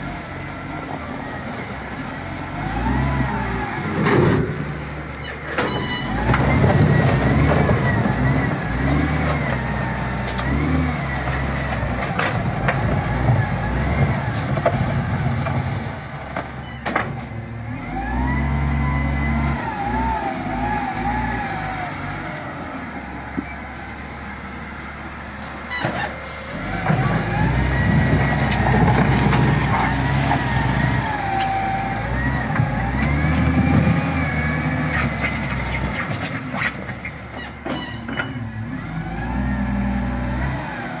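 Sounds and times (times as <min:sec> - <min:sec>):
bulldozer diesel engine under load: 0:00.0 - 0:41.0.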